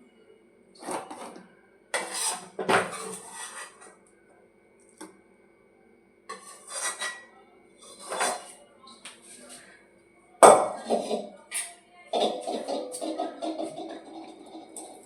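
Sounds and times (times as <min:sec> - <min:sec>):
utensil scraping a pan: 0:02.0 - 0:04.0, 0:06.3 - 0:08.6, 0:10.8 - 0:15.0.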